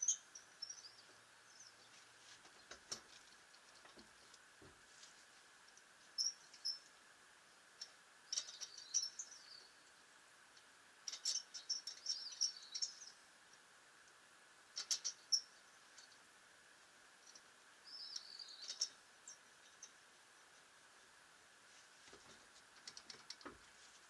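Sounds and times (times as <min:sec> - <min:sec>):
small birds twittering: 0:00.0 - 0:03.5, 0:06.1 - 0:07.0, 0:07.8 - 0:10.3, 0:11.0 - 0:13.7, 0:14.7 - 0:16.3, 0:17.2 - 0:20.7
faint steady hum: 0:00.0 - 0:24.0.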